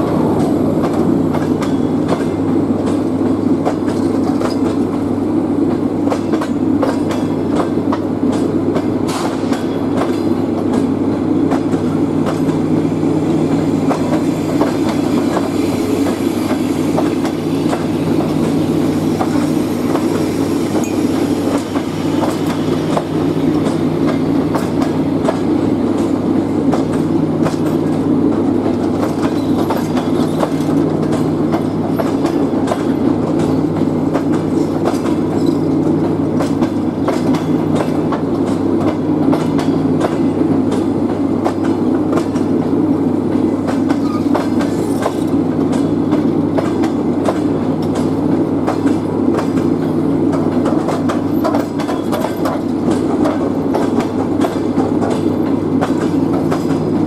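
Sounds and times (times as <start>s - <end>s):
train wheels rumbling on rail: 0.0s - 57.0s
wheels clacking over rail joints: 20.8s - 42.6s, 43.3s - 57.0s.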